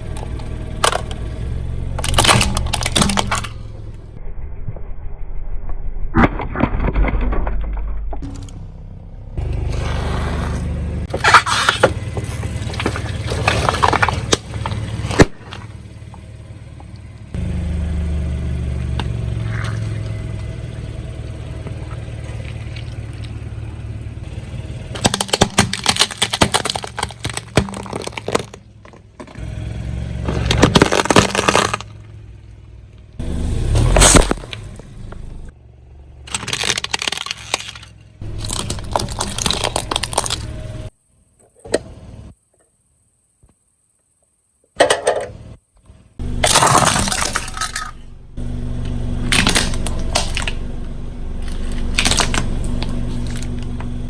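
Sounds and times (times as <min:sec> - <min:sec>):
tyres crushing brittle objects: 0:00.0 - 0:03.6, 0:09.7 - 0:16.4, 0:19.0 - 0:20.5, 0:24.9 - 0:29.4, 0:30.2 - 0:31.9, 0:33.6 - 0:35.2, 0:36.3 - 0:40.9, 0:46.2 - 0:54.0
car engine low rumble: 0:00.0 - 0:06.1, 0:07.0 - 0:43.1, 0:45.1 - 0:54.0
sharp crack: 0:24.9 - 0:29.0, 0:30.3 - 0:32.0, 0:33.4 - 0:35.5, 0:36.3 - 0:40.9, 0:46.2 - 0:54.0.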